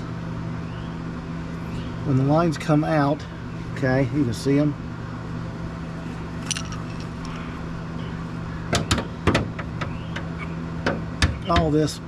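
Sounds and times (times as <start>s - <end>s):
steady low hum: 0.0s - 12.0s
metallic clinks and knocks: 6.4s - 7.5s.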